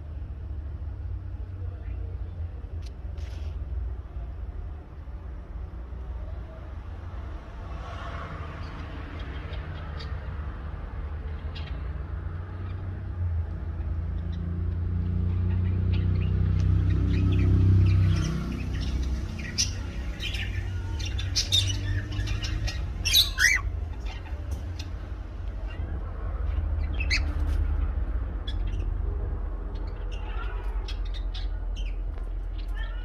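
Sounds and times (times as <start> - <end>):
cockatiel squawking and chirping: 21.1 - 24.3.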